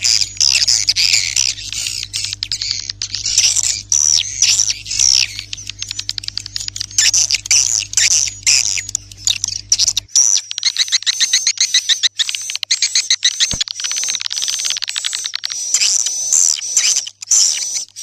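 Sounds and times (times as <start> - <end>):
low steady hum: 0.0 - 10.2
swiftlets clicking and chirping: 0.0 - 18.0.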